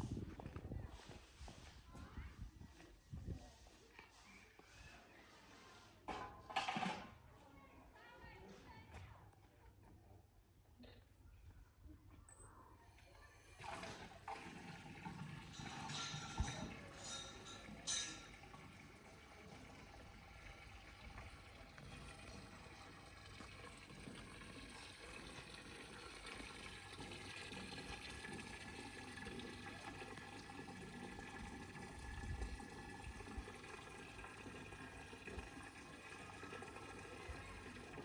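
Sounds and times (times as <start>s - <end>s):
faint running water: 12.9s - 38.0s.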